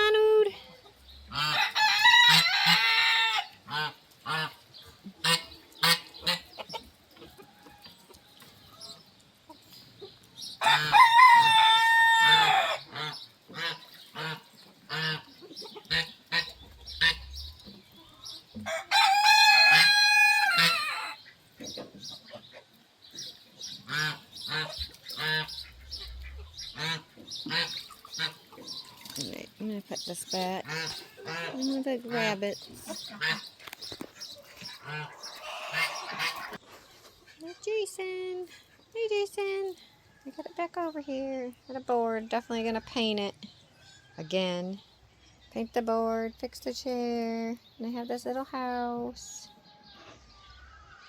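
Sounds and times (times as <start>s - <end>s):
hens clucking: 0.0s - 37.6s
rooster crowing: 10.6s - 12.8s, 18.6s - 21.2s.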